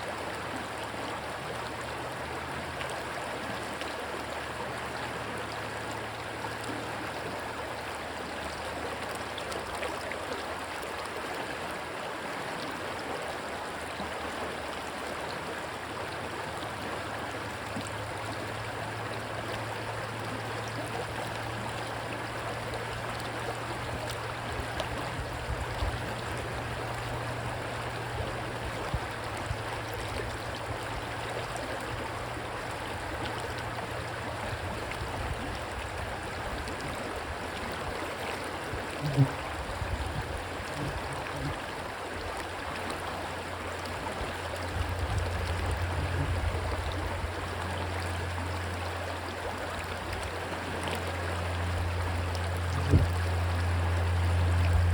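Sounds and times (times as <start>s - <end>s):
stream water rushing: 0.0s - 54.9s
low steady hum: 15.5s - 54.9s
low rumbles: 50.7s - 54.9s.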